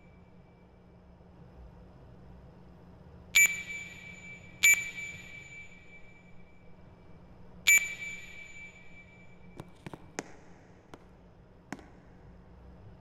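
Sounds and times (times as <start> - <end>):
faint low hum: 0.0 - 13.0
bell-like ringing strikes: 3.4 - 6.5, 7.7 - 9.6.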